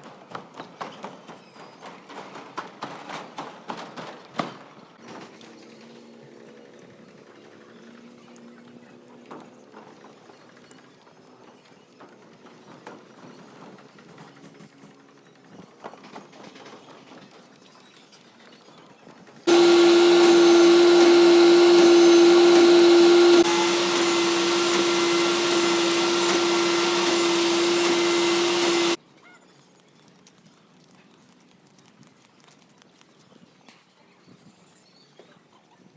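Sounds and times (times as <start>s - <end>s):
machine whining: 19.5s - 29.0s.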